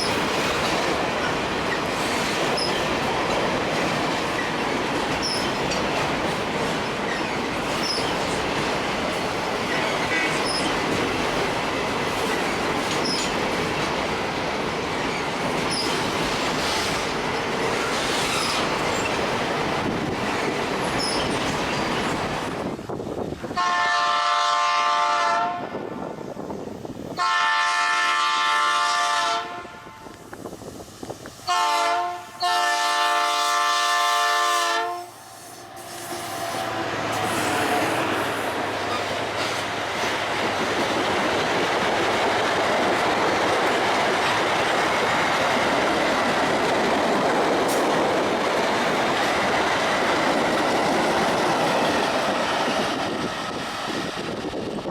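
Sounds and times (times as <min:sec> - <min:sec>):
freight train wheel noise: 0:00.0 - 0:54.9
train air horn blasts: 0:23.6 - 0:25.8, 0:27.2 - 0:30.2, 0:31.4 - 0:38.5.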